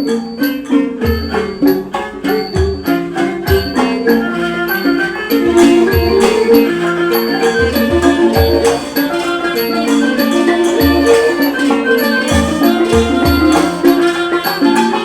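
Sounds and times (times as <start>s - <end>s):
high ringing strokes: 0.0s - 15.0s
pitched melody notes: 0.0s - 15.0s
low drum beats: 1.0s - 6.8s, 7.4s - 9.0s, 10.6s - 11.4s.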